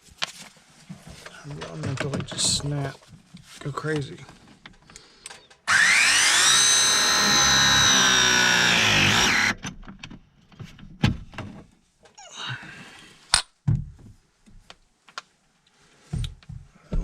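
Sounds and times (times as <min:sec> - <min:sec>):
power tool motor whining: 0:05.7 - 0:09.6.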